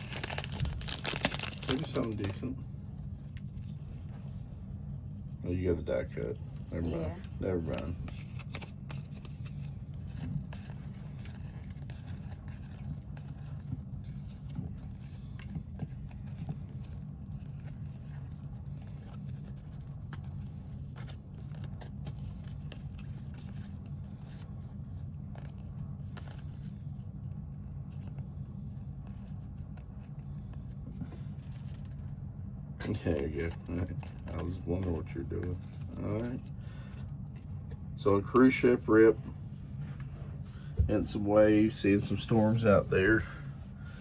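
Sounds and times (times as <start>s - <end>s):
cards and wrappers shuffled: 0.0s - 4.4s, 7.4s - 26.9s, 29.0s - 32.1s, 32.8s - 39.6s
steady low hum: 0.0s - 44.0s.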